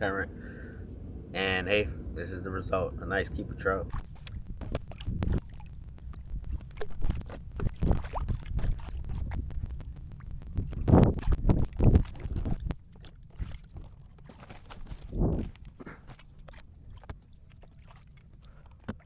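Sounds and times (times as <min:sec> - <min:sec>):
wind rumble on microphone: 0:00.0 - 0:15.8
knocks and rustling on kayak: 0:03.3 - 0:12.8.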